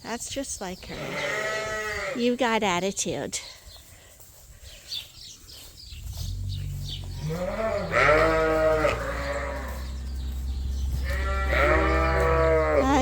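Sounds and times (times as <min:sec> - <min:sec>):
sheep bleating: 0:00.9 - 0:02.3, 0:07.0 - 0:10.1, 0:10.9 - 0:13.0.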